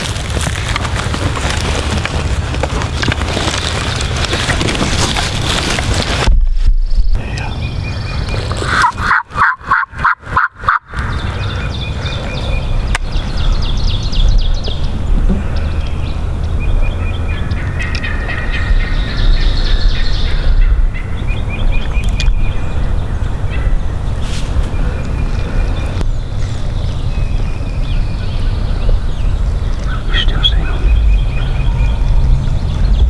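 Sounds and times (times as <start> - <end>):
turkey gobbling: 8.1 - 12.2, 28.5 - 32.4
turkey yelping: 8.2 - 12.2.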